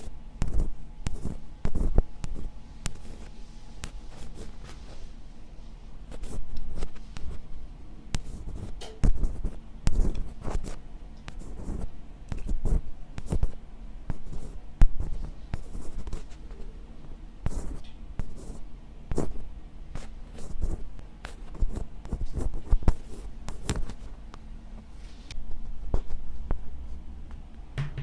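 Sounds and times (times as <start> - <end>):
scratching on microphone: 0.4 - 5.2.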